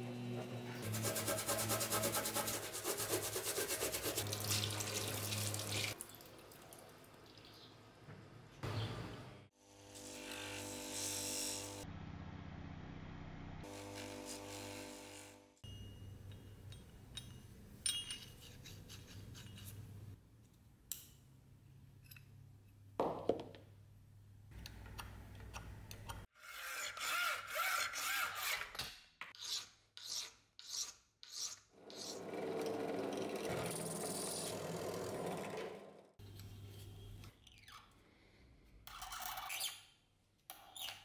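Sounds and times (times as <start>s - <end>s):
sandpaper rubbing on wood: 0.8s - 4.2s.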